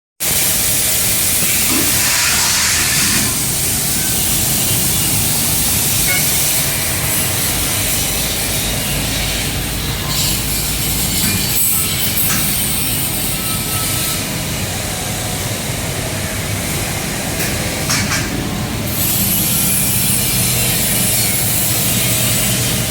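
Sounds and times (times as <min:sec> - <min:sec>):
laser cutting machine hissing: 0:00.2 - 0:17.6.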